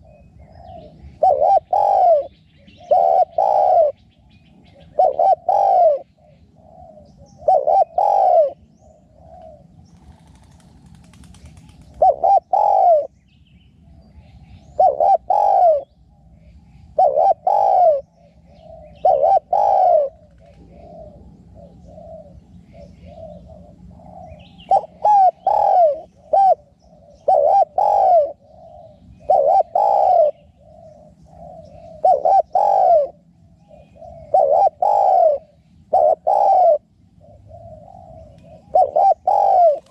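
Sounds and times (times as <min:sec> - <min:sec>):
doves cooing: 0:00.0 - 0:13.2, 0:13.8 - 0:39.9.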